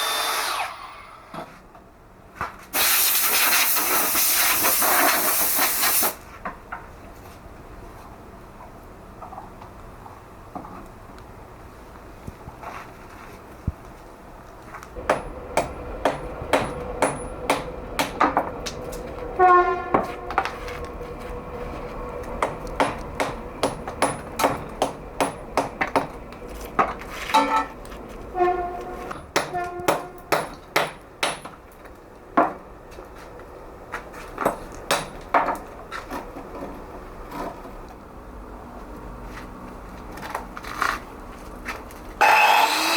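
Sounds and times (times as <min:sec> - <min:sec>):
hammer striking steel chisel: 0:15.0 - 0:18.5, 0:22.4 - 0:26.1.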